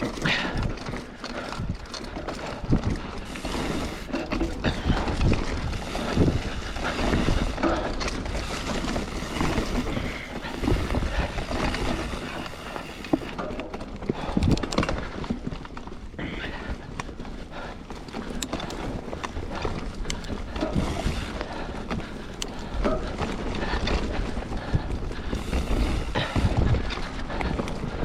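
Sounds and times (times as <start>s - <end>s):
bike frame knocking and rattling: 0.0s - 28.0s
tyre and wind rumble: 0.0s - 28.0s.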